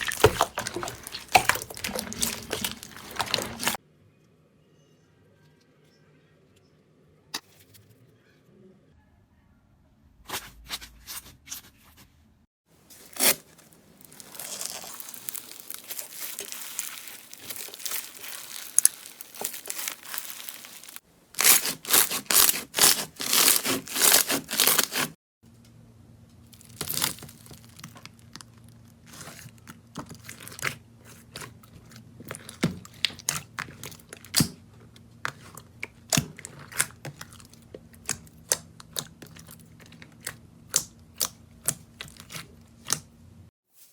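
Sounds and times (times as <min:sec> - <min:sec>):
slime crackling and popping: 0:00.0 - 0:03.8, 0:13.1 - 0:25.1, 0:26.6 - 0:28.7.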